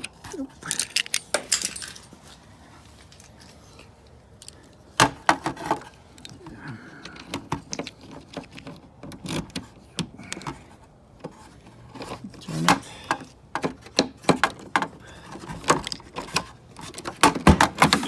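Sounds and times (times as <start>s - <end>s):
car keys jangling: 0.7s - 2.2s.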